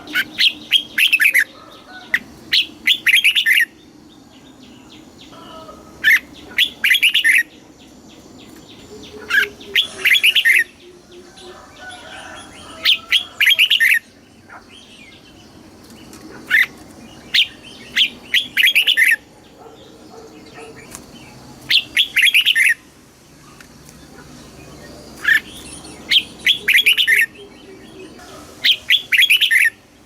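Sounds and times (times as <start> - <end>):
bird warbling whistled phrases: 9.2 - 10.8, 28.6 - 29.8.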